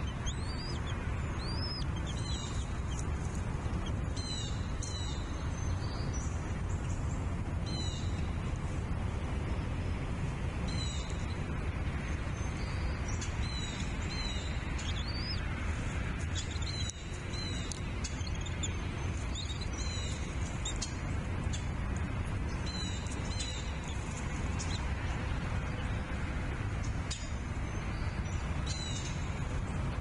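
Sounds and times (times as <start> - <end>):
eagles calling high chirps: 0.0 - 5.2
steady low rumble: 0.0 - 30.0.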